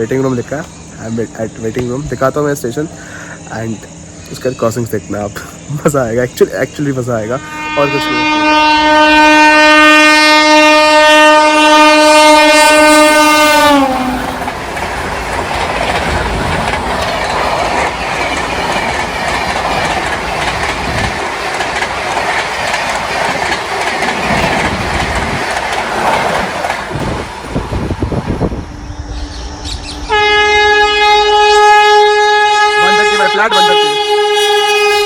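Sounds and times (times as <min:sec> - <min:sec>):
train wheels roaring on rail: 0:00.0 - 0:35.0
locomotive horn: 0:07.2 - 0:14.4, 0:30.0 - 0:35.0
clatter over rail joints: 0:14.3 - 0:27.7.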